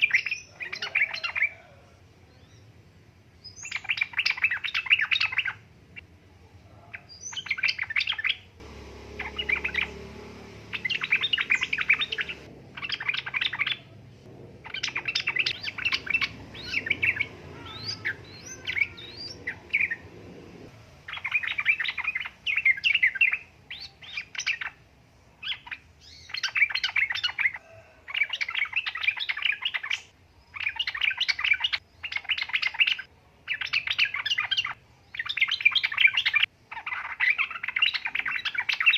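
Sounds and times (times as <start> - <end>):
bird chattering song: 0.0 - 1.6, 3.4 - 6.1, 6.9 - 24.8, 25.4 - 38.9
low rumble: 8.6 - 20.8.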